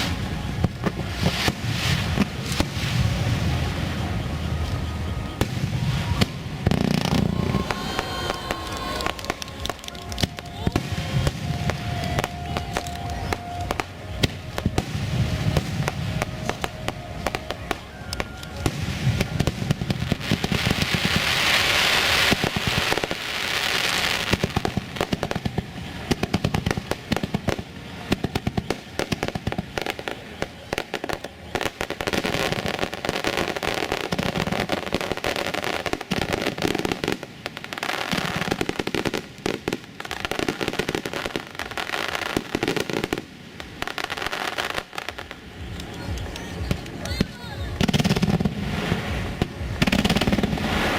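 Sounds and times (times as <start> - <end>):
fireworks bursting with bangs: 0.0 - 50.9
fireworks crackling hiss: 0.0 - 50.9.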